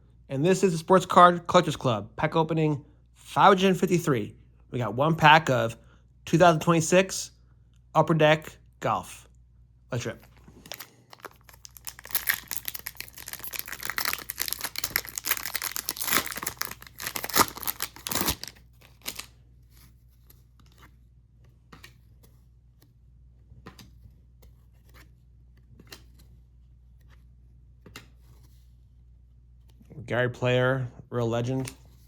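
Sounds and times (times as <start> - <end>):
wrapper tearing and crinkling: 10.3 - 19.3.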